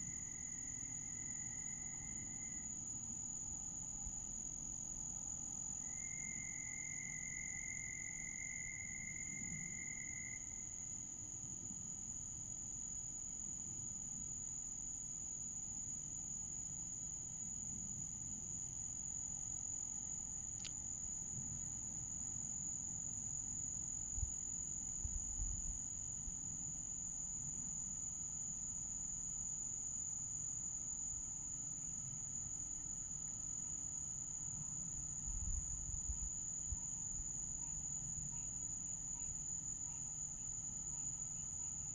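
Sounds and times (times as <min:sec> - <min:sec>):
insect high-pitched trill: 0:00.0 - 0:04.3, 0:05.5 - 0:11.2, 0:25.9 - 0:41.9
lower insect call: 0:00.0 - 0:41.9.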